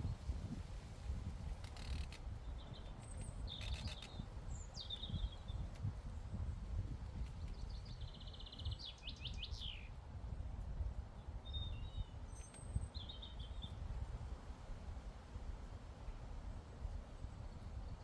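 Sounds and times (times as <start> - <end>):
songbirds singing: 2.4 - 5.7, 7.4 - 10.0.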